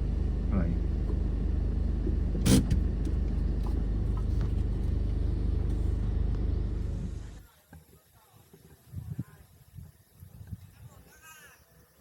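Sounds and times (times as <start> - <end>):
car engine and tyres rumbling: 0.0 - 7.5.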